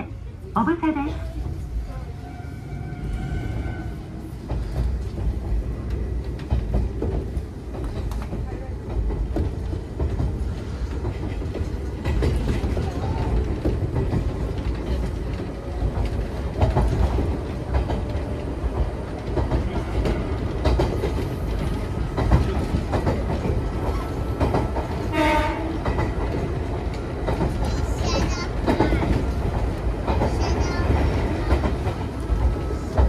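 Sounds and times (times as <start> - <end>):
train wheels rumbling: 0.0 - 33.0
brief pitched tone: 0.6 - 1.3
clickety-clack of rail joints: 2.3 - 33.0.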